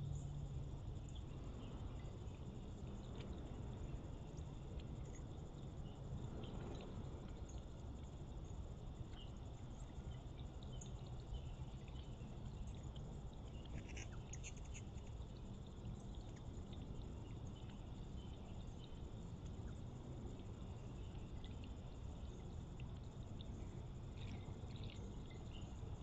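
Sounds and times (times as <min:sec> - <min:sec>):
faint bird chirps: 0:09.1 - 0:20.0, 0:23.3 - 0:26.0.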